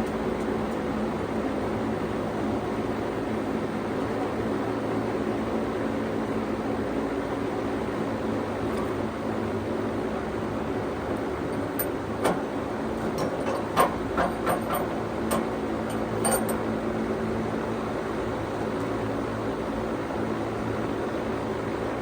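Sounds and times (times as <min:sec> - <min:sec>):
sawmill engine running: 0:10.5 - 0:17.1
sharp clicks and knocks: 0:11.1 - 0:16.7.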